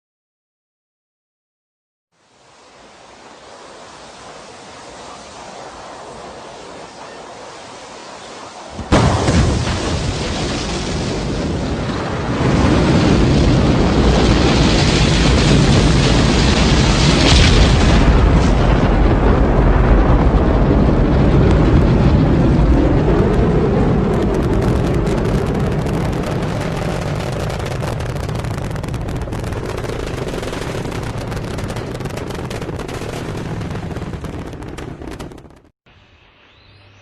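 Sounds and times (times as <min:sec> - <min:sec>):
rocket launch rumble with crackling: 0:08.6 - 0:35.8.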